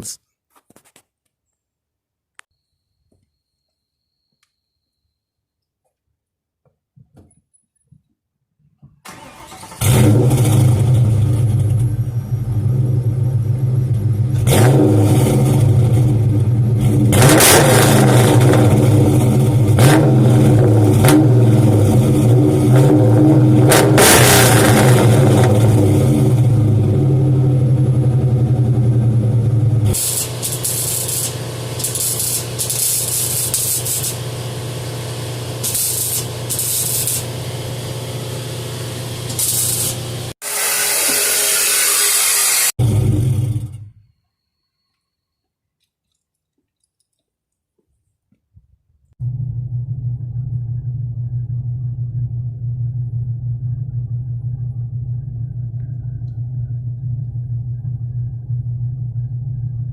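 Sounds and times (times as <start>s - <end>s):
engine starting: 9.0s - 12.0s, 30.0s - 34.2s, 42.8s - 44.1s
engine idling: 9.1s - 14.5s, 24.9s - 40.3s, 49.2s - 59.9s
engine throttle blips: 9.1s - 40.3s, 42.8s - 44.5s, 49.2s - 59.9s.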